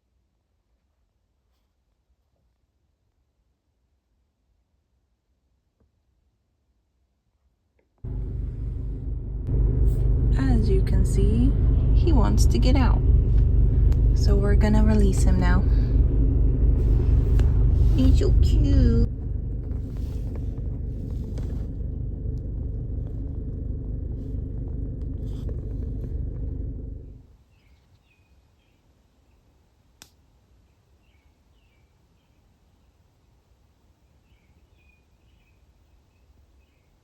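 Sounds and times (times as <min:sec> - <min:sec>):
steady low rumble: 0:08.0 - 0:27.2
faint bird chirps: 0:27.5 - 0:29.5, 0:34.0 - 0:37.0.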